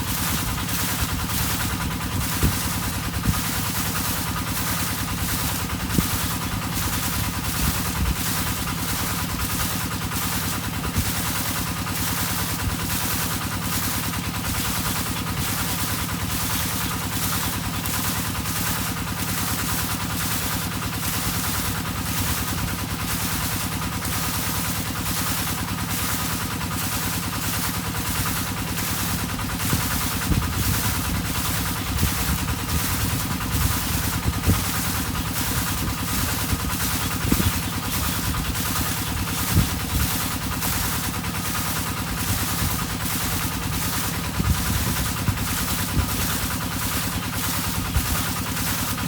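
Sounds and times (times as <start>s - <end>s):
water pump engine humming: 0.0s - 49.0s.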